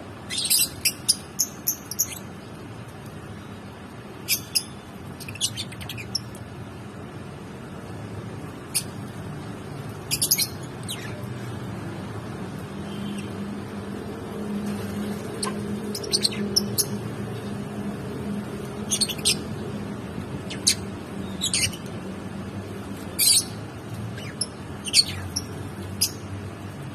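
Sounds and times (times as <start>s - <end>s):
lovebirds chirping: 0.2s - 2.3s, 4.3s - 6.4s, 10.1s - 11.4s, 15.2s - 17.5s, 18.8s - 19.5s, 20.4s - 21.9s, 22.9s - 26.3s.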